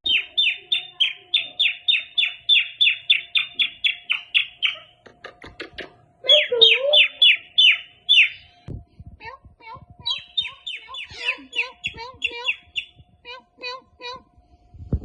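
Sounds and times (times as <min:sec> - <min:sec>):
parrot squawking: 0:00.1 - 0:05.0, 0:06.2 - 0:08.5, 0:09.6 - 0:14.2.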